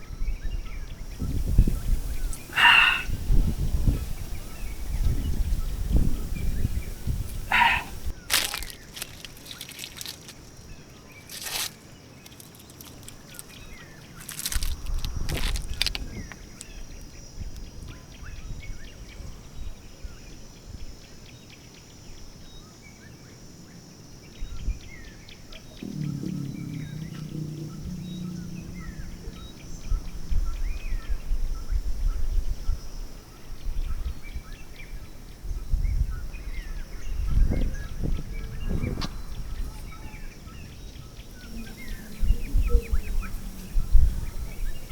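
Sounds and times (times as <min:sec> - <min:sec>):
wind rumbling on microphone: 0:00.0 - 0:19.8, 0:25.8 - 0:44.9
small birds chirping: 0:01.1 - 0:17.1
low steady hum: 0:01.2 - 0:10.4, 0:25.8 - 0:31.9
sharp knocks: 0:25.8 - 0:30.1.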